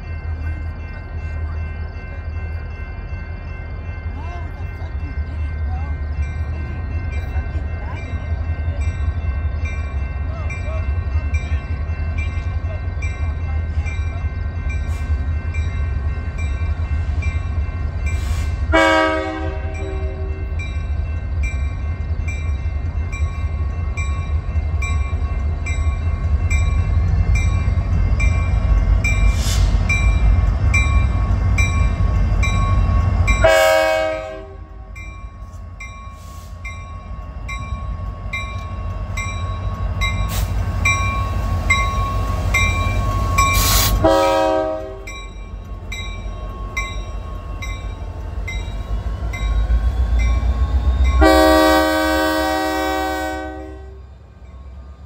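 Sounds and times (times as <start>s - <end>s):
diesel locomotive rumble: 0.0s - 55.0s
locomotive air horn: 18.3s - 20.4s, 33.4s - 34.7s, 43.7s - 45.1s, 51.2s - 54.0s.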